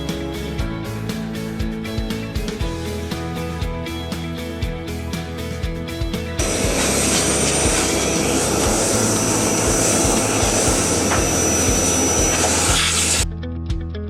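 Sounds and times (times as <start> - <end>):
background music: 0.0 - 14.0
power tool motor whining: 6.4 - 13.2.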